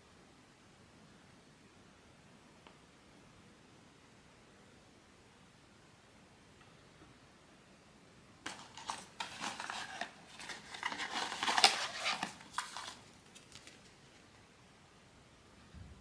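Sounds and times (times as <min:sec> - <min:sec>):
packaging crinkling and rustling: 0:08.5 - 0:14.3.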